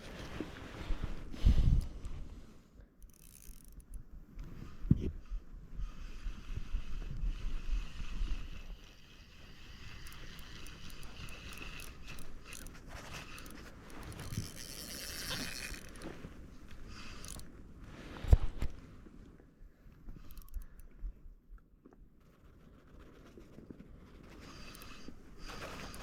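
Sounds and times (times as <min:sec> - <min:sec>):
fishing reel gears whirring: 0:03.0 - 0:04.0, 0:05.8 - 0:17.5, 0:20.2 - 0:20.8, 0:24.4 - 0:26.0.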